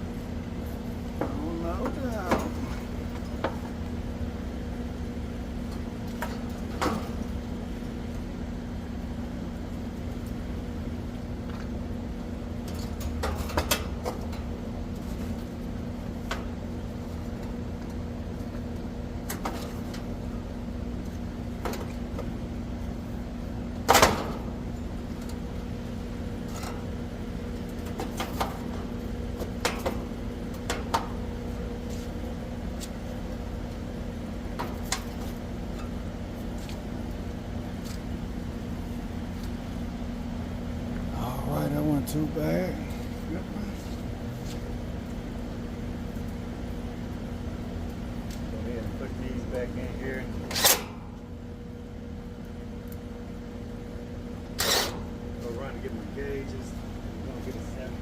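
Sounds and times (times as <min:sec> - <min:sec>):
air conditioner hum: 0:00.0 - 0:58.0
clicks and knocks of panels: 0:23.8 - 0:24.5.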